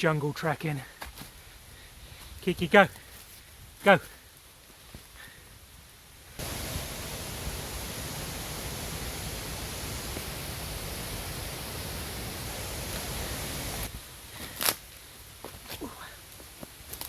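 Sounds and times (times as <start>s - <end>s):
falling water roaring: 6.4s - 13.9s.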